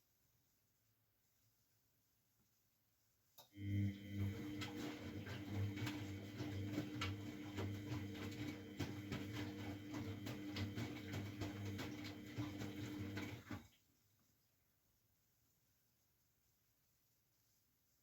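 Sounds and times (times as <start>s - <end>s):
washing machine motor hum: 3.5s - 13.8s.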